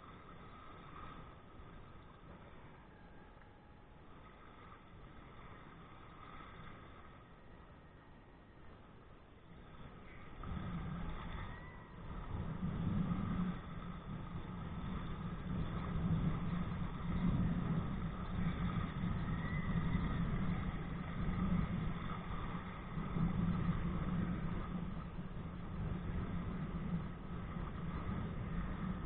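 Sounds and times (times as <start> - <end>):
water rumble: 0.0 - 29.0
wind rumble on microphone: 0.0 - 29.0.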